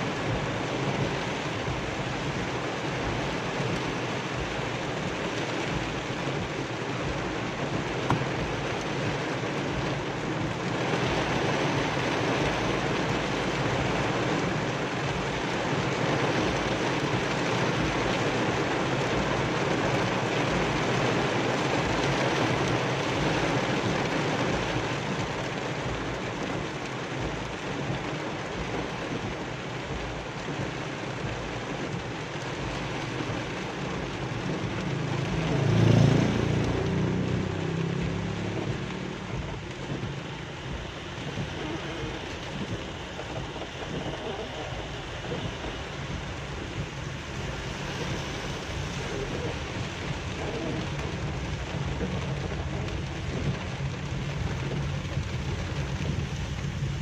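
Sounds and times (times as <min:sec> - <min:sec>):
heavy rain on car roof: 0:00.0 - 0:57.0
low rumble: 0:30.0 - 0:57.0.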